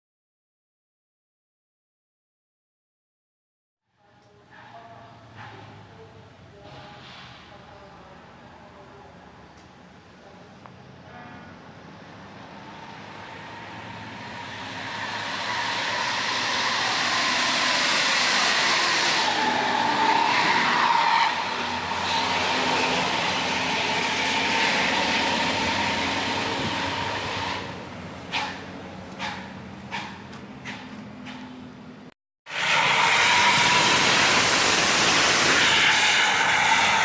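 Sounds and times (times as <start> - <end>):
bus exhaust whine: 9.4 - 37.0.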